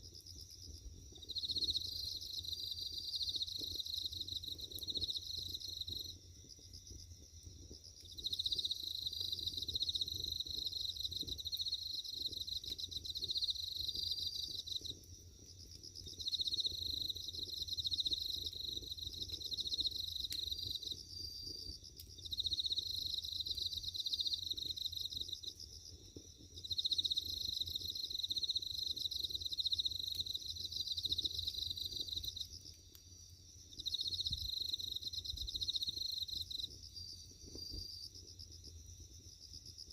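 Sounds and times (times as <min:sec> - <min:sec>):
crickets chirping: 0:00.0 - 0:39.9
wood fire crackling: 0:14.2 - 0:20.9.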